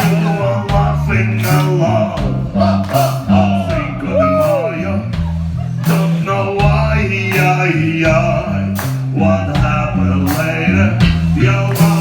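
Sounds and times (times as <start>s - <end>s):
bass line: 0.0s - 12.0s
drum hits: 9.6s - 12.0s.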